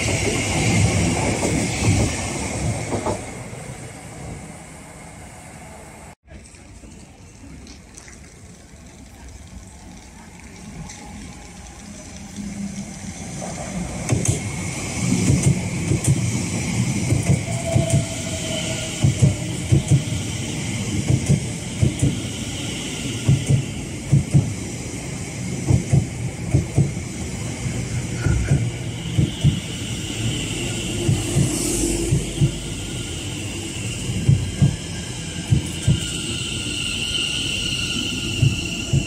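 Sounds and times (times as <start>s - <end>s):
train rolling noise: 0.0s - 39.0s
train wheels clacking over rail joints: 13.4s - 18.2s, 18.9s - 20.2s, 20.8s - 22.3s, 31.0s - 32.8s.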